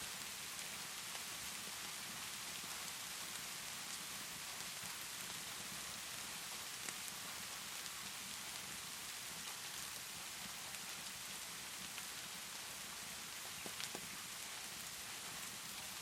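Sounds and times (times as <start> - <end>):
rainfall hiss: 0.0 - 16.0
wood fire crackling: 13.6 - 14.9.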